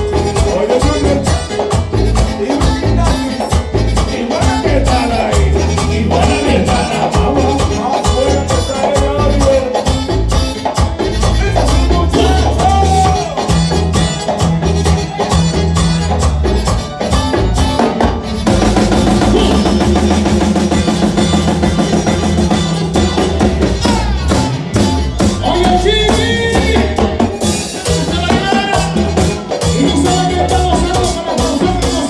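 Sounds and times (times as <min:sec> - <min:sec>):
person singing: 0:00.0 - 0:10.2, 0:11.3 - 0:13.8, 0:19.0 - 0:20.4, 0:23.6 - 0:32.0
drums and percussion: 0:00.0 - 0:32.0
rapid repeated melodic notes: 0:00.0 - 0:32.0.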